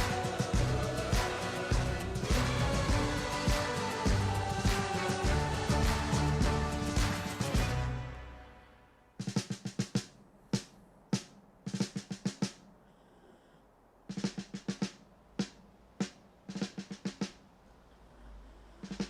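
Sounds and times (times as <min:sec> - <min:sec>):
snare drum rolls and strokes: 0:00.0 - 0:08.0, 0:09.2 - 0:12.7, 0:14.1 - 0:17.5.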